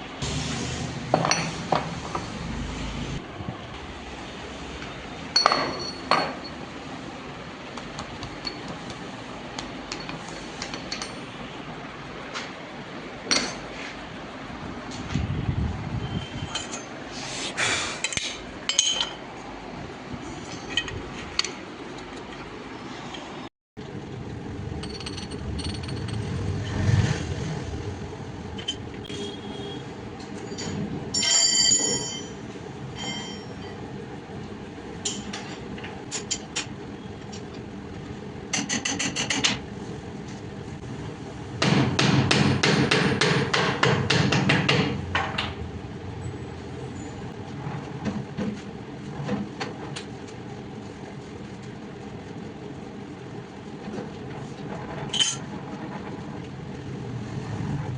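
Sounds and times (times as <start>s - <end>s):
workshop noise: 0.0s - 57.9s
metal tools clinking on metal: 5.4s - 6.6s, 16.4s - 16.9s, 18.1s - 19.2s, 30.4s - 32.4s, 33.0s - 33.8s
machinery rumbling: 23.8s - 29.1s, 53.7s - 57.9s.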